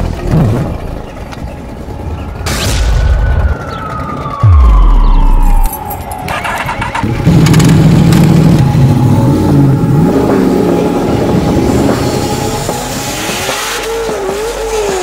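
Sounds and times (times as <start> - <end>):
motorcycle engine running: 0.0 - 2.5, 3.2 - 15.0
slow falling tone: 2.1 - 7.0
deep booming bass drop: 2.2 - 5.9.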